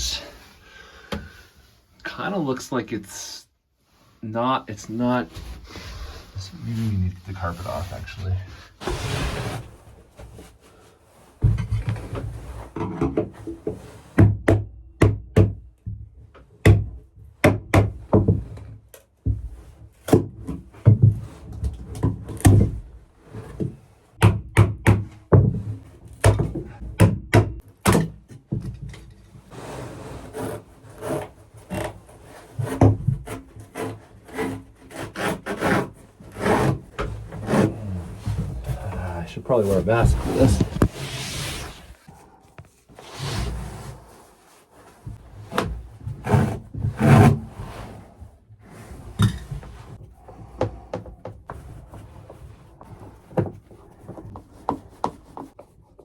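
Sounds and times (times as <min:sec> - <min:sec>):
carpet scraping and tearing: 0:08.8 - 0:10.4, 0:29.5 - 0:42.1
knocks and thuds on plywood: 0:14.2 - 0:18.6, 0:23.6 - 0:29.0.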